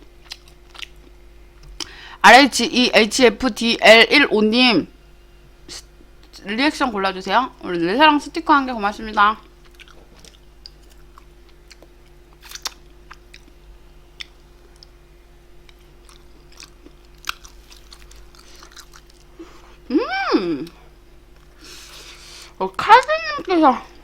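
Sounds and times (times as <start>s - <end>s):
steady low hum: 0.0s - 24.0s
chewing and biting food: 0.2s - 1.8s, 9.4s - 13.6s, 14.2s - 15.0s, 15.6s - 19.4s.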